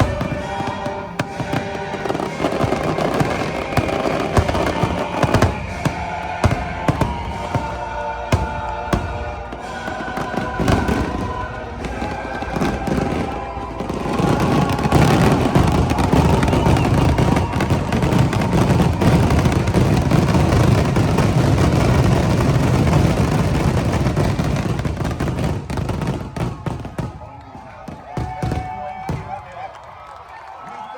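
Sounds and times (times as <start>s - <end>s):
show music: 0.0s - 23.4s
fireworks bangs and crackle: 0.0s - 30.9s.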